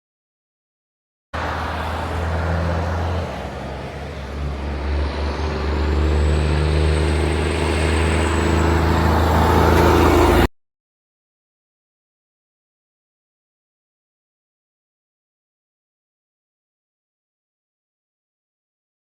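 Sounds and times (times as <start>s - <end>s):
truck diesel engine droning: 1.4s - 10.5s.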